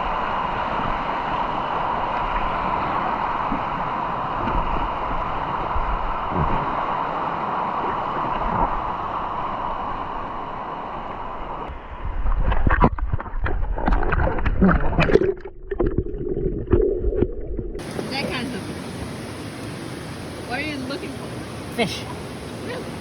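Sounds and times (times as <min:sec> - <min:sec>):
rushing falling water: 0:17.8 - 0:23.0.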